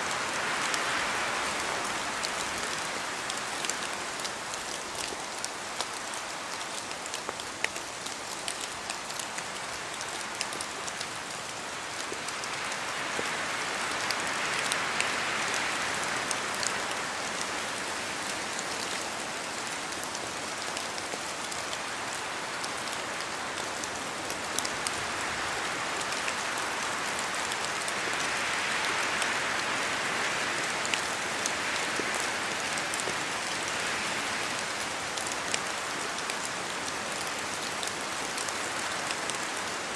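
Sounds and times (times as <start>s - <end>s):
rain hissing through trees: 0.0s - 39.9s
drops ticking on leaves: 2.2s - 13.3s.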